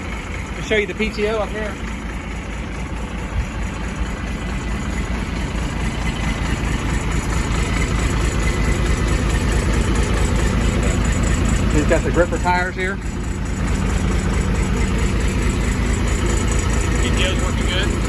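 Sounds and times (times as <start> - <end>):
diesel truck engine running: 0.0 - 18.0.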